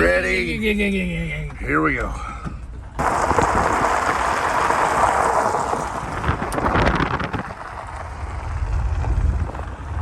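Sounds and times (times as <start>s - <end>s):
car engine low rumble: 0.0s - 10.0s
tyres on gravel: 3.0s - 10.0s
wind on microphone: 3.0s - 10.0s.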